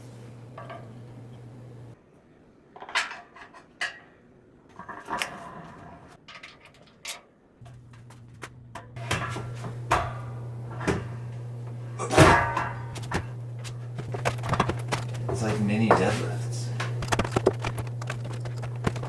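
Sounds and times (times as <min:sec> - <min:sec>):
low hum: 0:00.0 - 0:02.0, 0:07.6 - 0:19.0
knocks and clunks: 0:07.6 - 0:19.0.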